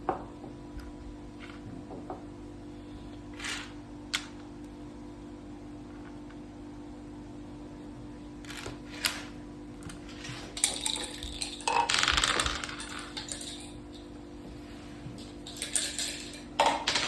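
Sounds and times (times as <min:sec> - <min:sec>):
dice clattering on a board: 0:10.1 - 0:13.7.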